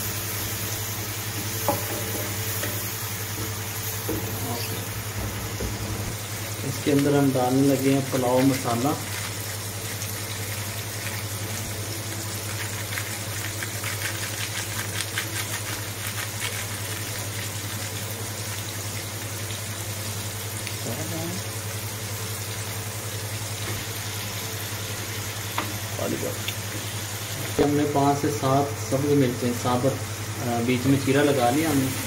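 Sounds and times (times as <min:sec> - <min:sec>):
food sizzling in oil: 0:00.0 - 0:32.0
foil packet crinkling: 0:08.3 - 0:18.0.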